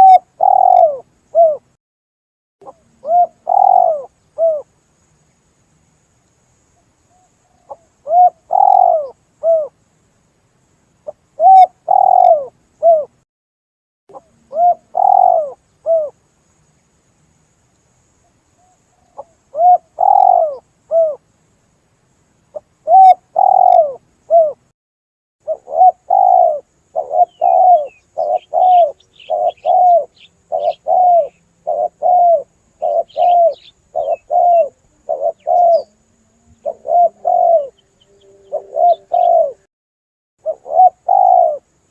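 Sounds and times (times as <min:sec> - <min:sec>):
small birds chirping: 0:00.0 - 0:01.6, 0:02.6 - 0:04.6, 0:06.2 - 0:09.7, 0:10.9 - 0:13.1, 0:14.1 - 0:16.9, 0:17.7 - 0:21.2, 0:22.5 - 0:24.6, 0:25.4 - 0:39.7, 0:40.4 - 0:41.9
dove cooing: 0:00.0 - 0:01.7, 0:02.6 - 0:04.7, 0:07.1 - 0:09.7, 0:11.4 - 0:13.2, 0:14.1 - 0:16.2, 0:18.6 - 0:21.2, 0:22.6 - 0:24.6, 0:25.4 - 0:39.7, 0:40.4 - 0:41.8.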